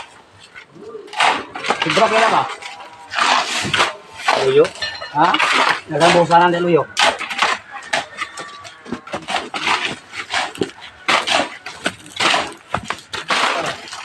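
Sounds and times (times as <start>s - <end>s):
hand tools clinking and knocking: 3.6s - 14.0s.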